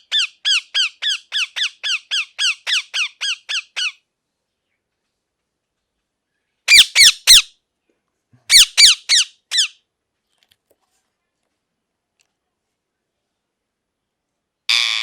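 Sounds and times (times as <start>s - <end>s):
parakeet squawking: 6.7s - 7.5s, 8.5s - 9.8s, 14.7s - 15.0s.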